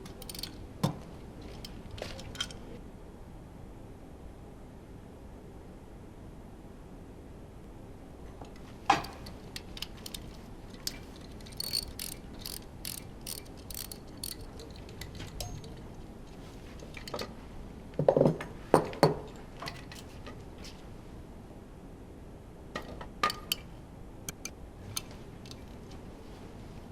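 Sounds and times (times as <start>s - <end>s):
hand tool metallic clicks: 0.0s - 0.6s, 8.9s - 15.6s, 24.3s - 25.6s.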